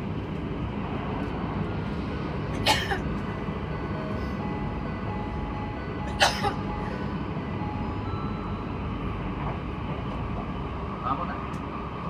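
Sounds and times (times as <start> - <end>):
train wheels rumbling on rails: 0.0 - 12.0
faint steady tones: 3.2 - 10.2.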